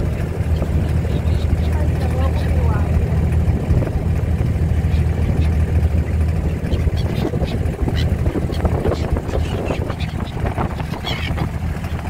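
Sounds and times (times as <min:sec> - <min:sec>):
boat engine droning: 0:00.0 - 0:12.0
seabirds calling: 0:00.0 - 0:12.0.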